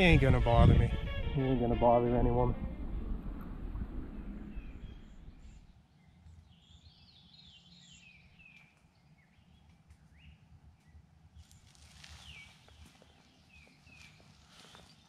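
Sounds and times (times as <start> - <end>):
low outdoor rumble: 0.0 - 6.6
birds singing faintly: 4.0 - 15.0.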